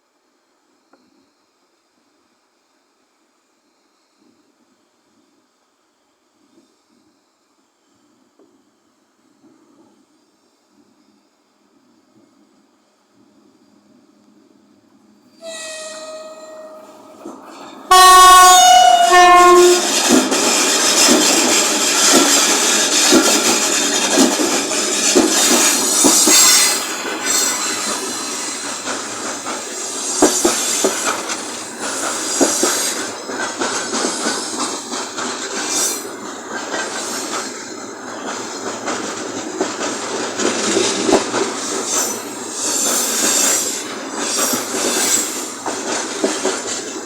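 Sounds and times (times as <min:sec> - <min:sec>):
locomotive horn blasts: 0:15.4 - 0:20.2
train wheels clacking on rails: 0:15.4 - 0:47.0.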